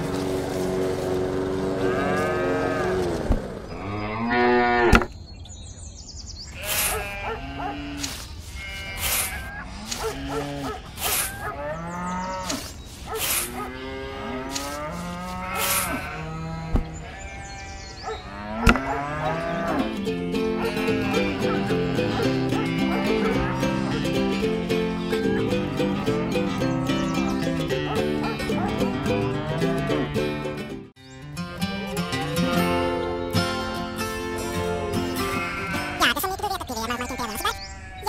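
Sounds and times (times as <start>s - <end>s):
cattle mooing: 0.0s - 5.1s, 6.6s - 12.6s, 13.3s - 24.1s, 28.7s - 30.1s.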